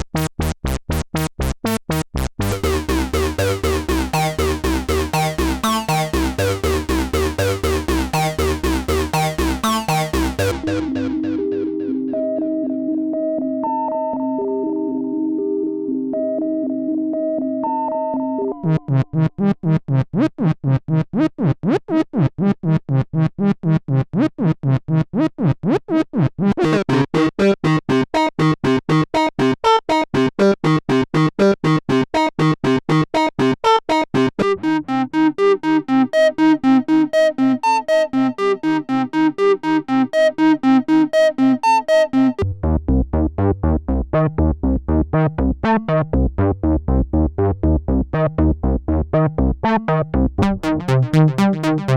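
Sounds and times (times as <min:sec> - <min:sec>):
synthesizer sequenced pattern: 0:00.0 - 0:12.8, 0:33.9 - 0:42.7, 0:49.6 - 0:51.9.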